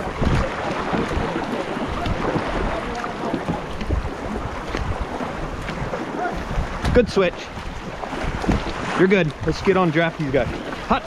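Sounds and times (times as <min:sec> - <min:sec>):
canoe paddles splashing water: 0:00.0 - 0:11.0
rushing water: 0:00.0 - 0:11.0
wind rumble on microphone: 0:00.0 - 0:11.0.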